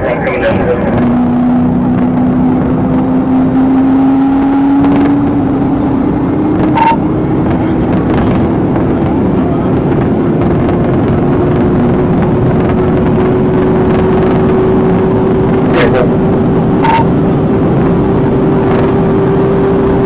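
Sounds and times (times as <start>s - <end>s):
car driving fast: 0.0s - 20.0s
short high beep: 6.7s - 7.0s, 16.8s - 17.1s.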